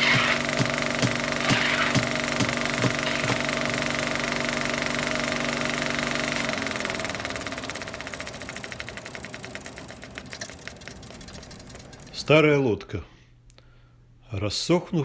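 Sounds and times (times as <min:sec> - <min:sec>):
engine running with knock: 0:00.0 - 0:11.9.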